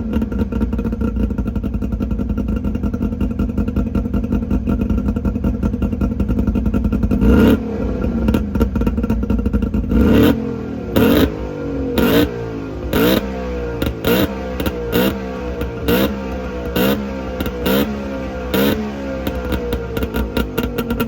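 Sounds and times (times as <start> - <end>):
two-stroke engine idling: 0.0 - 21.0
engine revving: 7.1 - 21.0.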